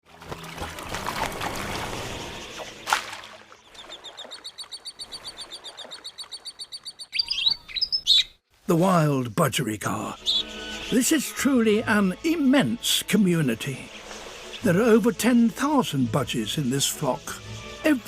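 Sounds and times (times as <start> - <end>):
birds chattering: 1.8 - 8.4, 9.2 - 12.1.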